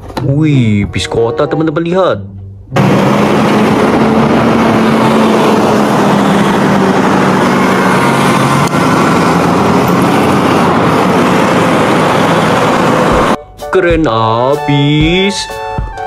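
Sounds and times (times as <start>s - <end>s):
bus engine running: 2.7s - 13.4s.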